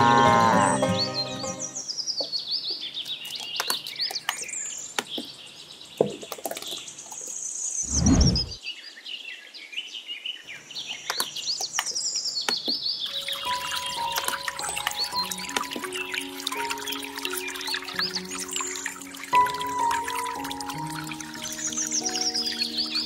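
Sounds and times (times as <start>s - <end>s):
birds chirping: 10.4s - 23.0s.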